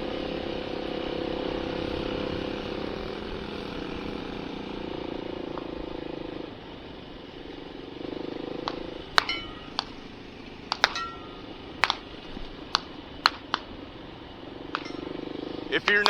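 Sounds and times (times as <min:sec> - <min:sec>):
dirt bike engine idling: 0:00.9 - 0:16.0
sharp gunshots: 0:10.7 - 0:13.9.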